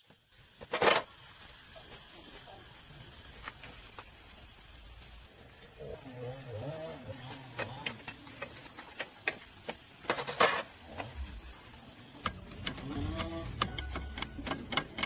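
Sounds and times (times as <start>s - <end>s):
sharp clicks and knocks: 12.2s - 15.0s.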